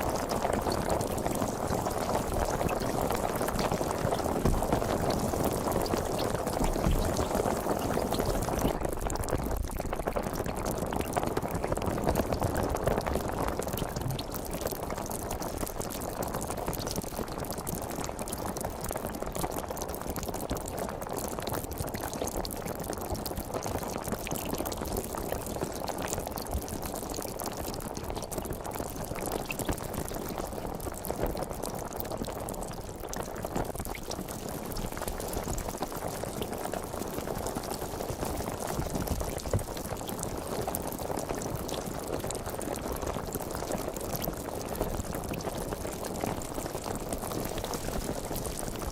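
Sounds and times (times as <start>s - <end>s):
sparkling water fizzing: 0.0s - 8.9s.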